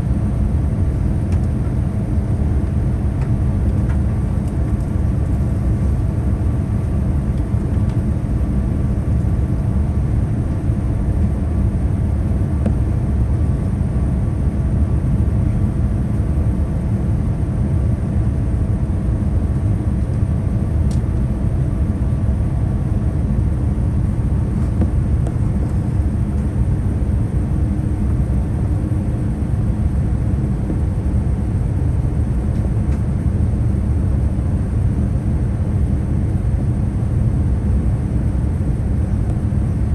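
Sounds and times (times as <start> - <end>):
faint whine: 0.0 - 33.1
airliner cabin engine rumble: 0.0 - 39.9.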